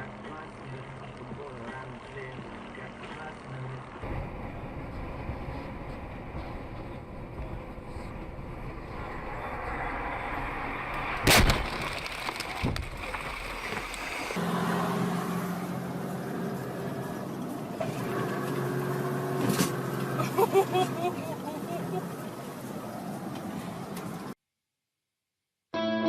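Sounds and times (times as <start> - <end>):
low engine hum: 0.0 - 24.4
car interior road noise: 4.0 - 24.4
vehicle collision bang: 10.6 - 14.4.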